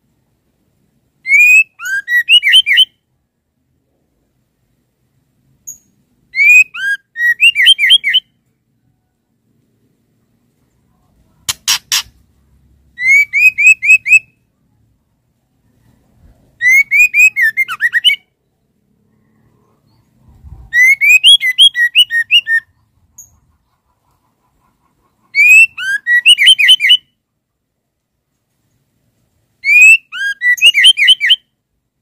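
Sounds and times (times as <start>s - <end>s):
bird whistled calls: 1.3s - 2.9s, 6.4s - 8.3s, 13.0s - 14.3s, 16.6s - 18.3s, 20.6s - 22.7s, 25.4s - 27.1s, 29.6s - 31.5s
harsh clicks: 11.5s - 12.2s.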